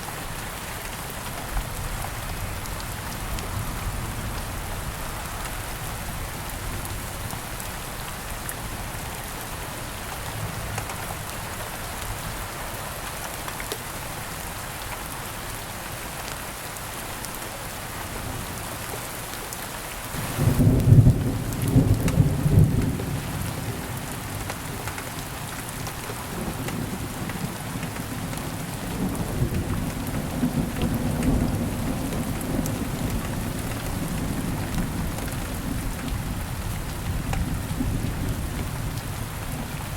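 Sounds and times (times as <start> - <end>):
steady rain falling: 0.0 - 39.9
thunder rumbling: 20.2 - 24.0.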